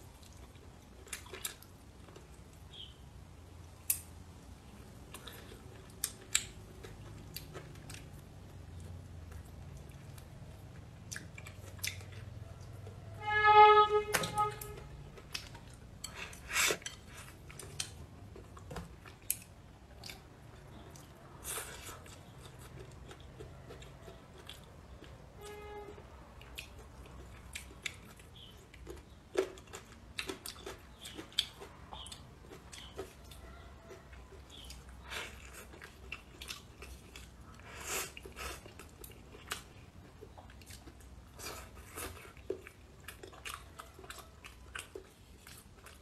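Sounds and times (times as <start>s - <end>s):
person chewing food: 0.0s - 2.9s, 4.6s - 13.1s, 14.3s - 25.6s, 26.4s - 46.0s
short steady pitched tone: 13.2s - 14.9s.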